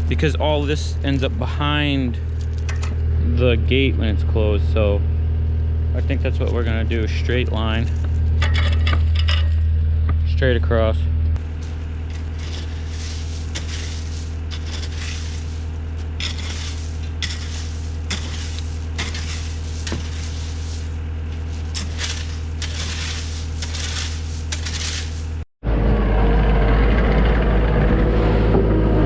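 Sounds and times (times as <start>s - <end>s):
excavator engine running: 11.0s - 29.0s
bucket scraping through gravel: 11.4s - 25.4s.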